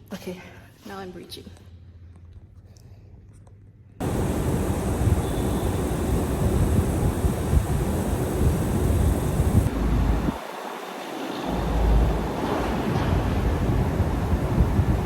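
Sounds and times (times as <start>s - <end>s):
wind buffeting microphone: 4.0s - 10.4s, 11.5s - 15.0s.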